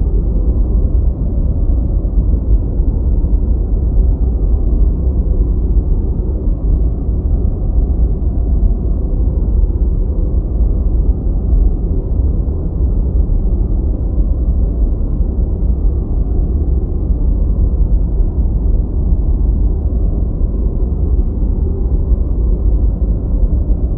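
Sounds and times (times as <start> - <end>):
deep white noise: 0.0 - 23.9.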